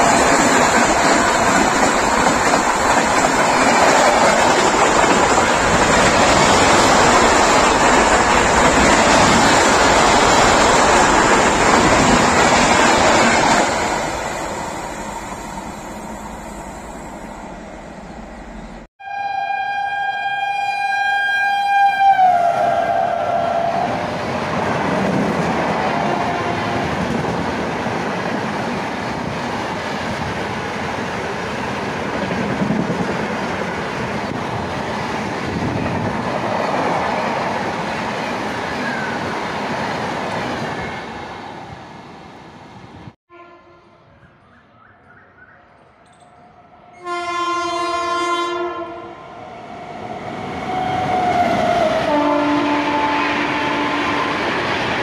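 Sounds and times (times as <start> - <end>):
train coaches rumbling past: 0.0 - 18.9, 21.8 - 55.0
train horn blowing: 19.0 - 24.1, 43.3 - 44.2, 46.9 - 49.2, 50.6 - 54.4.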